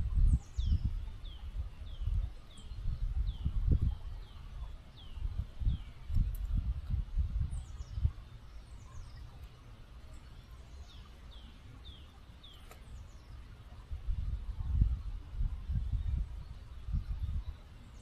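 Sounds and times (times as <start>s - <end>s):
songbird chirping: 0.0s - 18.0s
river flowing: 7.6s - 15.6s.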